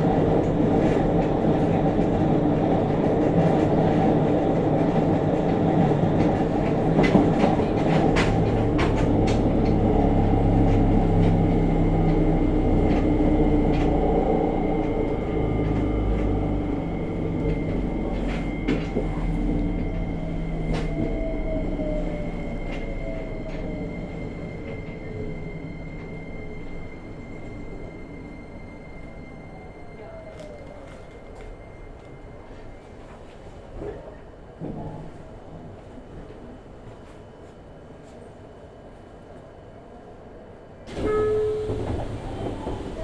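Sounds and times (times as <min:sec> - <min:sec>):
falling brake whine: 0:08.2 - 0:32.4, 0:40.9 - 0:43.0.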